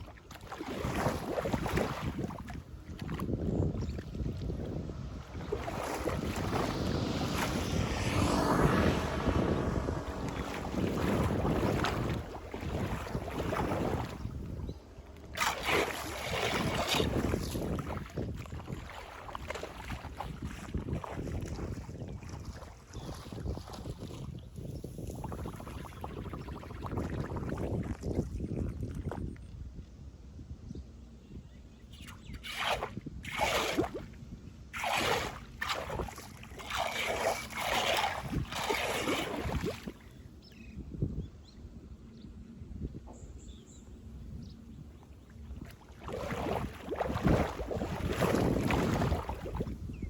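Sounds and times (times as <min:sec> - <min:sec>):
wet rustling swishes: 0:04.0 - 0:14.6, 0:15.3 - 0:24.1, 0:32.4 - 0:34.0, 0:34.8 - 0:40.0, 0:45.6 - 0:49.8
flood water rushing at drain grate: 0:34.8 - 0:39.9.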